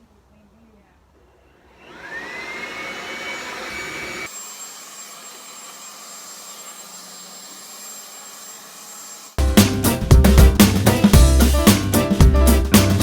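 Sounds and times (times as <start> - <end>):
leaf blower high whine: 1.7 - 4.3.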